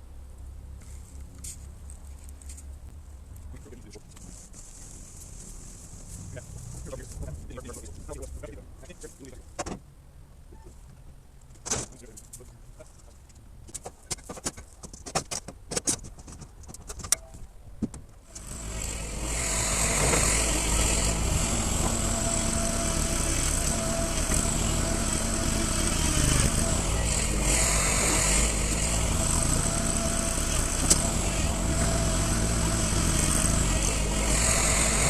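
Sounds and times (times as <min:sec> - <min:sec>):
sharp knocks and clicks: 0:13.1 - 0:18.2
small engine whining: 0:18.2 - 0:35.0.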